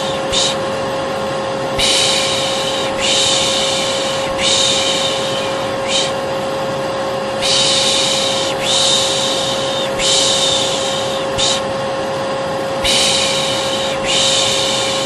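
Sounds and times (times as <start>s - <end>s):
person shushing: 0.0s - 0.7s, 1.8s - 6.2s, 7.4s - 11.7s, 12.8s - 15.0s
vacuum cleaner humming: 0.0s - 15.0s.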